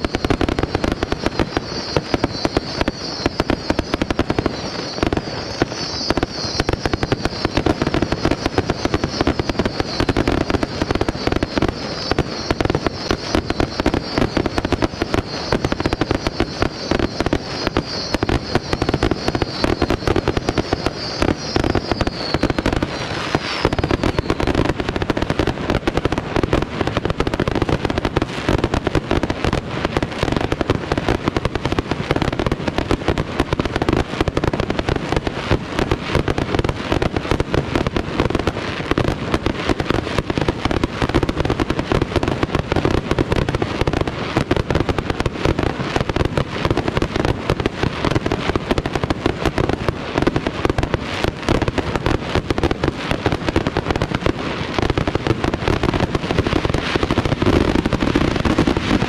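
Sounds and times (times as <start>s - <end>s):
fireworks bursting: 0.0s - 59.0s
high wavering whistle: 1.2s - 24.6s.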